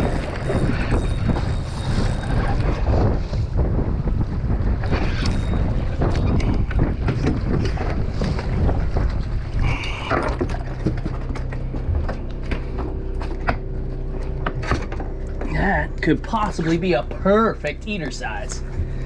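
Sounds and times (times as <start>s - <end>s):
low rumble: 0.0s - 19.0s
steady low hum: 0.0s - 19.0s
wind buffeting microphone: 0.0s - 19.0s
knocks and clatter on deck: 5.7s - 15.5s.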